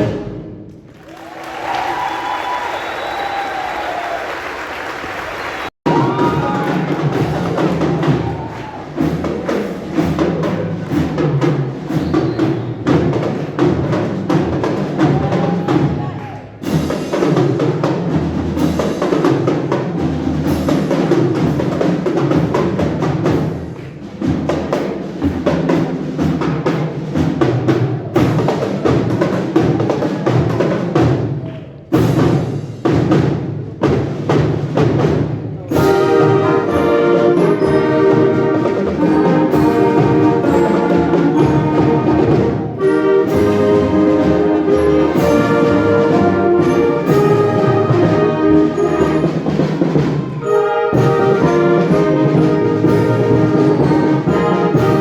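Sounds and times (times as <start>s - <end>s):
wind band playing: 0.0s - 31.0s, 31.9s - 55.0s.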